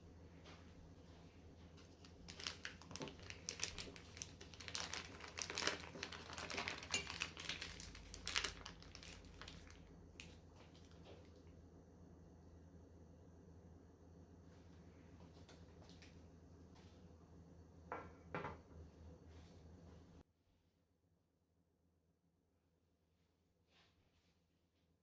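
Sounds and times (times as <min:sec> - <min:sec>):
crinkling and light clicking: 0:01.6 - 0:11.4.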